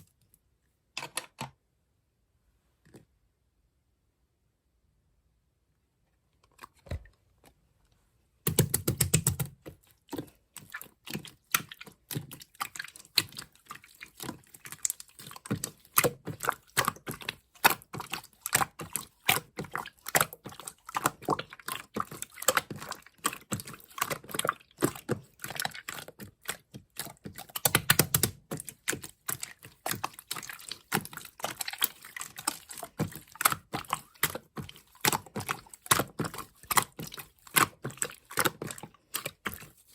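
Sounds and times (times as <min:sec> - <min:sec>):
slime squishes: 0:08.4 - 0:39.9.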